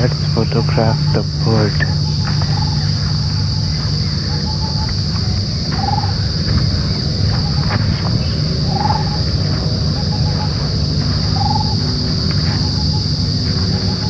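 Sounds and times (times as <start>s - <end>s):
insects droning: 0.0s - 14.0s
low rumble: 0.0s - 14.0s
bird rippling call: 1.9s - 5.0s, 5.8s - 6.2s, 7.4s - 9.3s, 9.9s - 10.7s, 11.3s - 11.8s.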